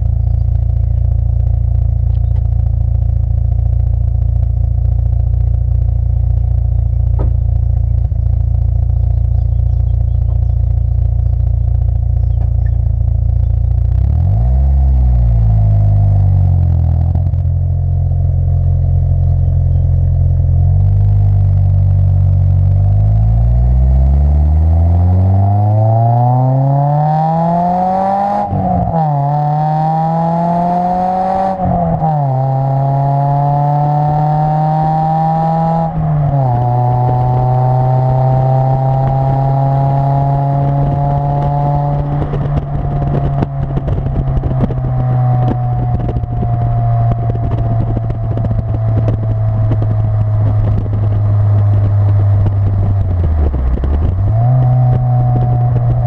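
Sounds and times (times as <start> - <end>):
car exhaust accelerating: 0.0 - 56.0.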